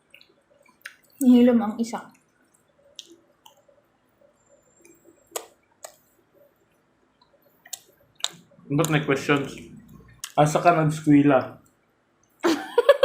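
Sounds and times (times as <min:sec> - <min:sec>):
person chewing food: 0:04.8 - 0:06.1, 0:06.8 - 0:10.4.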